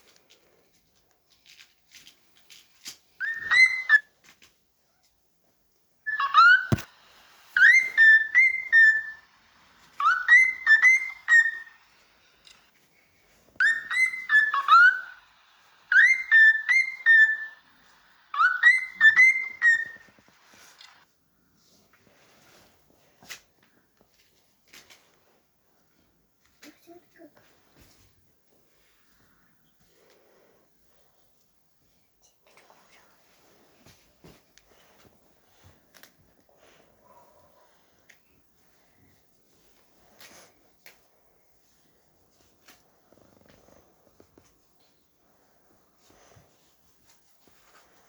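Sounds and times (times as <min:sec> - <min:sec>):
cockatiel whistled chirps: 0:03.2 - 0:04.1, 0:06.1 - 0:12.0, 0:13.6 - 0:20.9.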